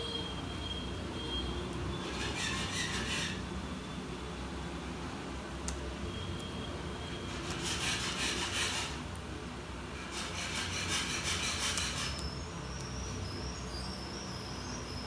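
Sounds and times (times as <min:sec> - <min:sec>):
dry rubbing or scraping: 0:10.1 - 0:12.2.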